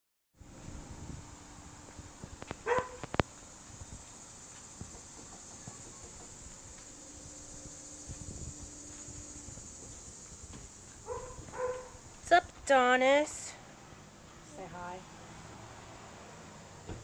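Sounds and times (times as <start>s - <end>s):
high-pitched hiss: 0.4s - 17.0s
dog barking: 2.6s - 3.1s, 11.0s - 12.0s.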